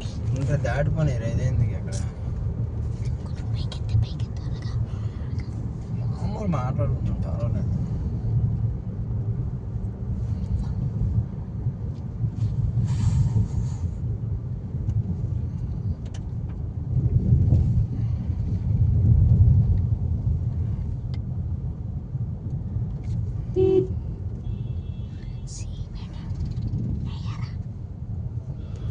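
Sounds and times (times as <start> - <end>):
road vehicle rumble: 0.0 - 28.9
brief hiss: 12.8 - 13.9.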